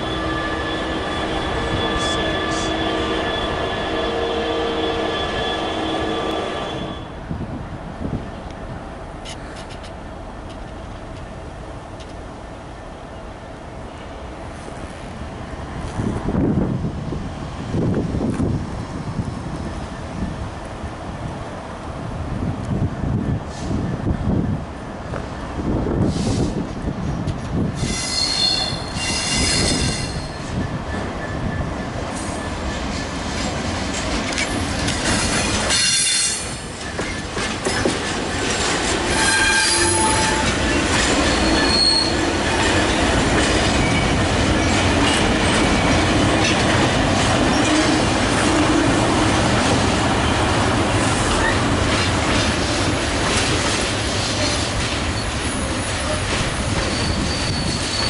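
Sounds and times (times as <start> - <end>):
train wheels squealing: 0.0 - 7.2, 27.8 - 33.2, 34.4 - 46.0, 54.3 - 58.0
train rumble: 0.0 - 58.0.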